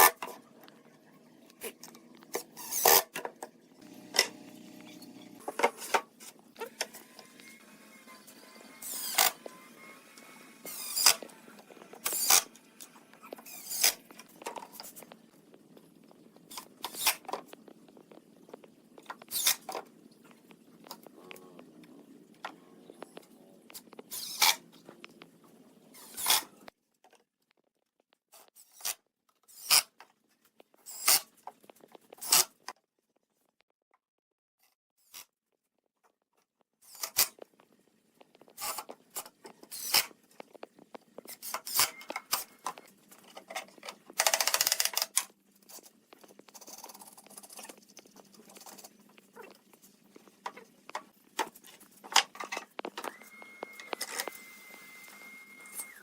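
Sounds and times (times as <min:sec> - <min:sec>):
sharp clicks and knocks: 0:38.3 - 0:49.2.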